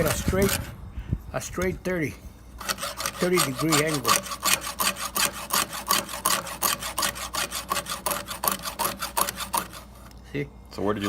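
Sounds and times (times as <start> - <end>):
hand file rasping on chain: 0.0 - 0.8, 2.6 - 10.1.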